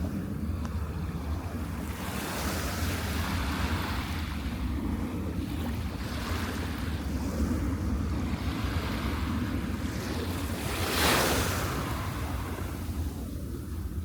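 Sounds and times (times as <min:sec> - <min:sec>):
wind buffeting microphone: 0:00.0 - 0:14.0
surf breaking on beach: 0:08.4 - 0:13.0.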